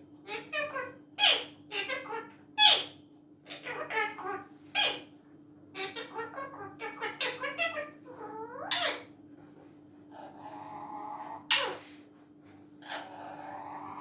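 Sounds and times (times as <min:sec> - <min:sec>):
parrot calling: 0:00.3 - 0:05.1, 0:05.8 - 0:09.1, 0:10.4 - 0:11.9.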